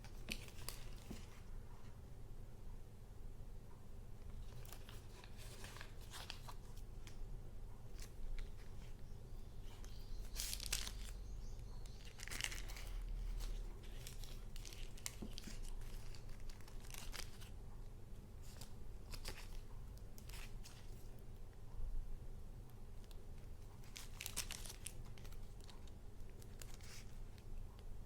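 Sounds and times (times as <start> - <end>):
paper rustling: 0.0 - 1.5, 4.3 - 7.2, 9.6 - 11.2, 12.0 - 17.6, 23.4 - 27.5.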